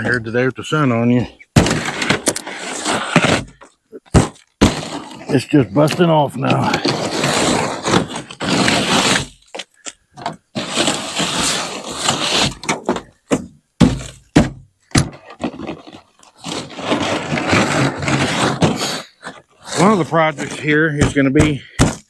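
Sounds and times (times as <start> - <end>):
broom scraping ice: 0.0 - 9.6, 10.5 - 13.1, 13.8 - 14.2, 15.2 - 22.0
sharp knocks: 21.0 - 22.0.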